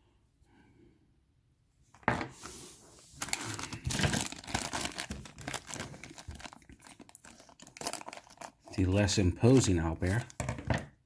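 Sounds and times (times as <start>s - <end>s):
plastic bag crinkling: 3.1s - 10.5s.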